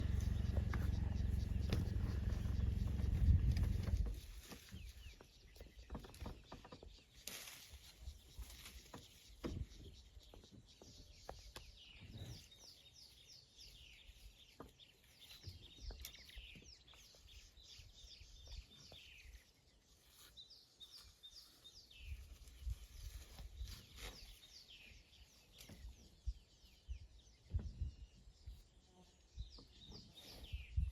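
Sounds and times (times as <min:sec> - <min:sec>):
faint low knocks: 0:00.0 - 0:04.1
rustles: 0:00.0 - 0:10.4, 0:11.3 - 0:26.2
wild birds chirping: 0:00.0 - 0:30.9.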